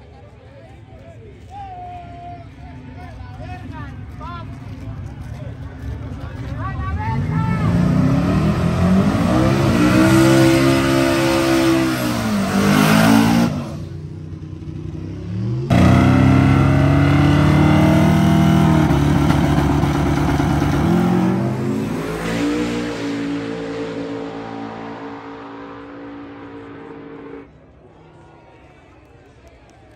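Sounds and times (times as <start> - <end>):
truck engine at full throttle: 6.1 - 27.5.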